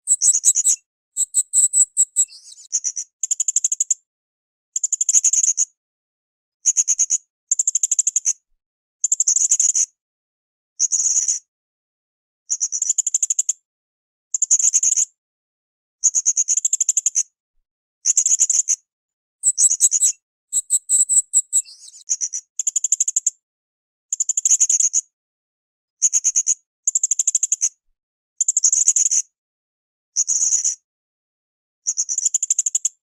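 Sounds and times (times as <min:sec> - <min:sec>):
parrot high rapid trills: 0:19.4 - 0:21.6.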